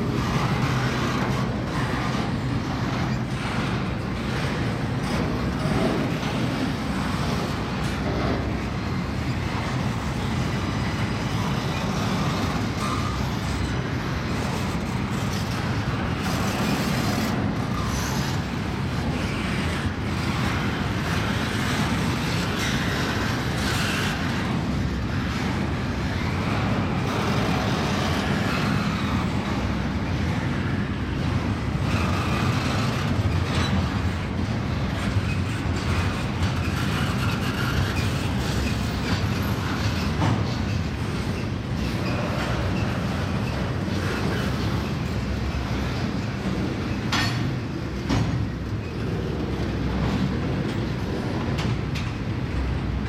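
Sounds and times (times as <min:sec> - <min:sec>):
freight train wheels rumbling: 0:00.0 - 0:53.0
train cars clanking: 0:17.4 - 0:53.0.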